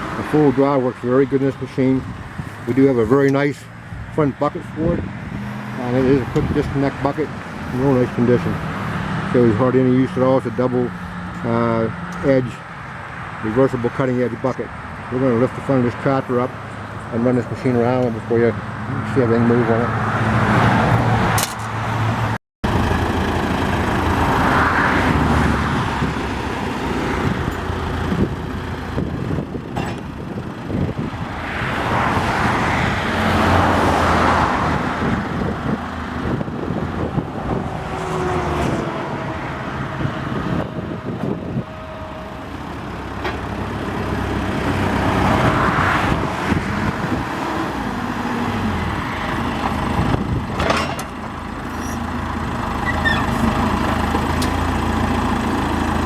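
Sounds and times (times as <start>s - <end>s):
hydraulics lifting: 0.0s - 12.3s, 38.6s - 56.0s
diesel engine running: 0.0s - 56.0s.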